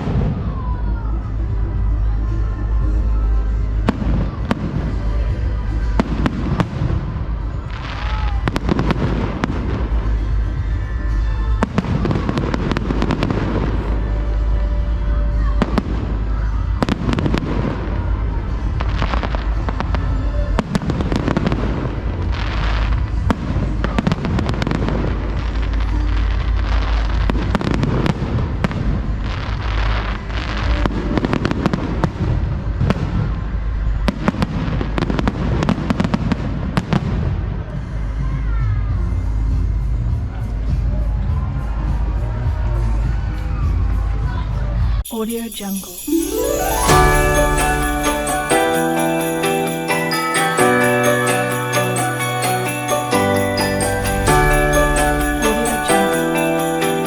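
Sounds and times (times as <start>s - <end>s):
fireworks bangs and crackles: 0.0s - 0.8s, 3.8s - 38.0s, 46.2s - 57.0s
music playing: 1.1s - 28.0s, 45.0s - 57.0s.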